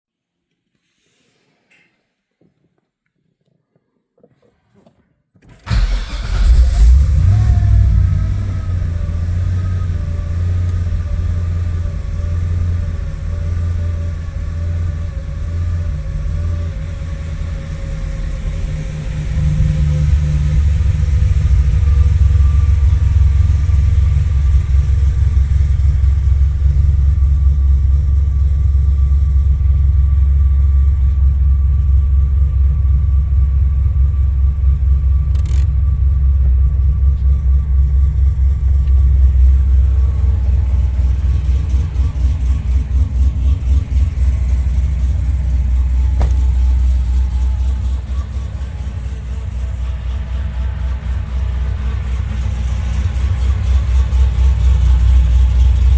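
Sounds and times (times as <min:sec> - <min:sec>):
car engine idling: 0:05.6 - 0:55.9.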